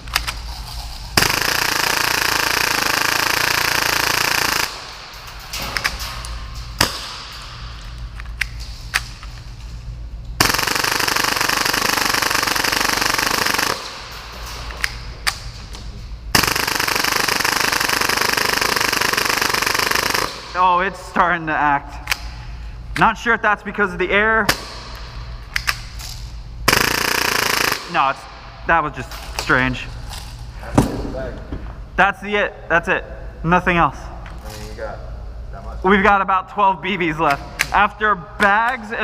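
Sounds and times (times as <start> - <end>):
airsoft pistol rapid fire: 1.2 - 5.1, 10.4 - 14.2, 16.3 - 20.6, 26.7 - 28.0.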